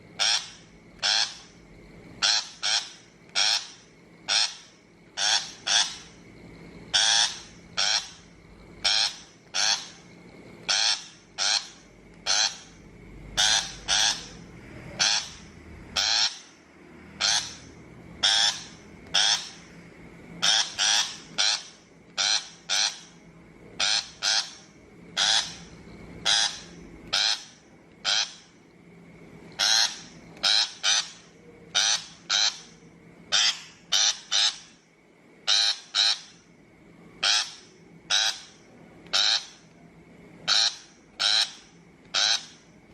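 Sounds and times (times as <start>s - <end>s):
shrike harsh scolding calls: 0.2s - 1.6s, 2.2s - 6.2s, 6.9s - 19.7s, 20.4s - 23.2s, 23.8s - 28.6s, 29.6s - 34.8s, 35.5s - 36.4s, 37.2s - 39.6s, 40.4s - 42.6s.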